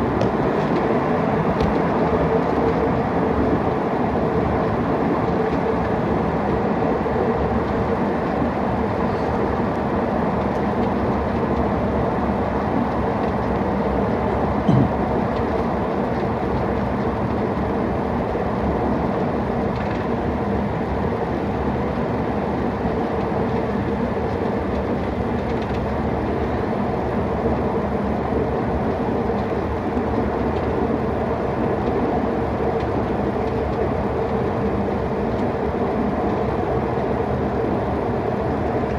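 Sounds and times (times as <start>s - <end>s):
constant hum: 0.0s - 6.3s, 6.9s - 17.4s
jet engine and airflow rumble: 0.0s - 38.9s
brief knock: 14.7s - 14.9s.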